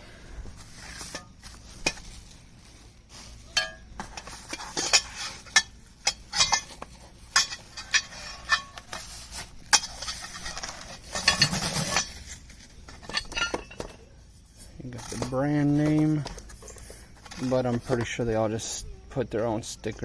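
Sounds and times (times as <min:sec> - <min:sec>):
metal parts clinking: 0:03.5 - 0:18.2.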